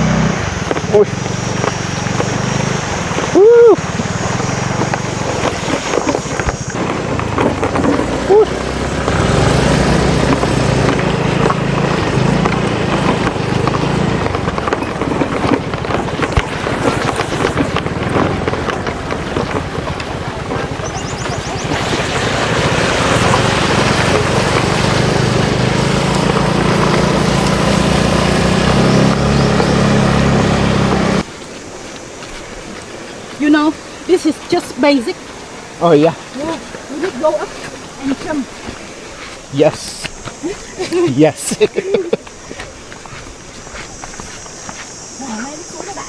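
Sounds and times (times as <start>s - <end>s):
motorbike engine running: 0.0s - 31.3s
wind rushing over microphone: 0.0s - 40.8s.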